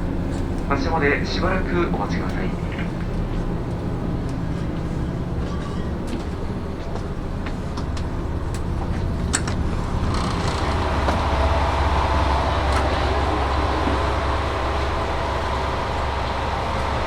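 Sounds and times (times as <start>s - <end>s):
diesel engine idling hum: 0.0s - 17.0s
rushing noise: 9.9s - 17.0s.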